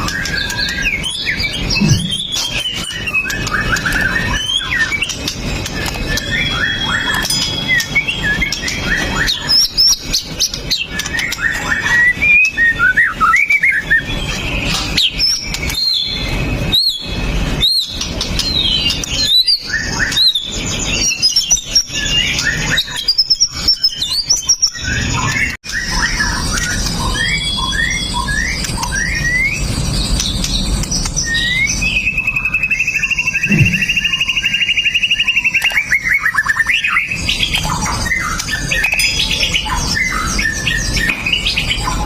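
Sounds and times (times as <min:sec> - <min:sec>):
songbird singing: 0:00.0 - 0:42.0.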